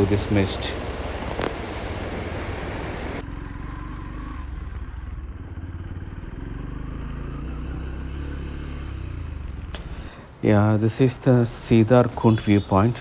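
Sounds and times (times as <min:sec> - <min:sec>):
wind and road noise hiss: 0:00.0 - 0:03.2
motorcycle engine running: 0:00.0 - 0:10.4.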